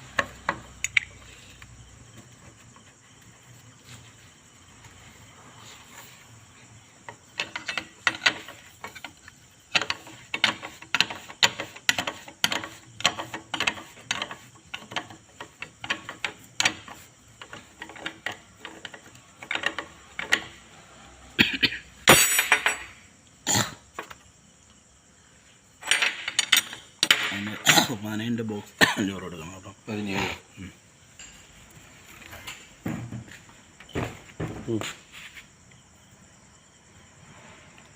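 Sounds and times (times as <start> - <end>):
metallic clatter of tools: 7.3 - 20.5, 25.8 - 27.7.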